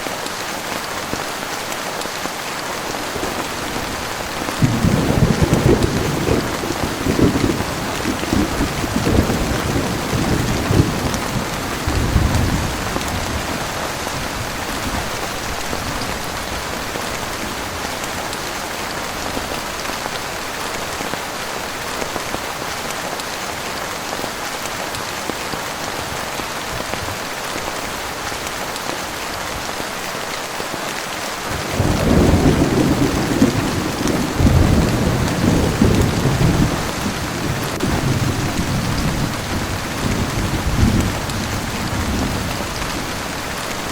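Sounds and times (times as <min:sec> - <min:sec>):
heavy rain falling: 0:00.0 - 0:43.9
thunder rumbling: 0:02.8 - 0:18.3, 0:31.5 - 0:43.9.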